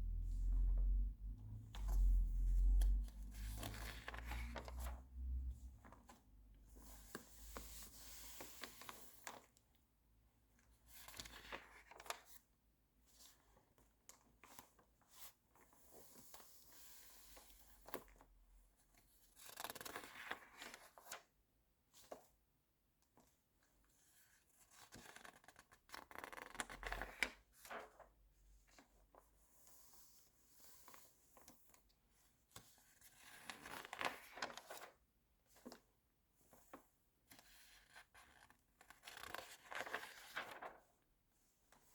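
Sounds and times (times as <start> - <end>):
magazine pages rustling: 38.3 - 40.9.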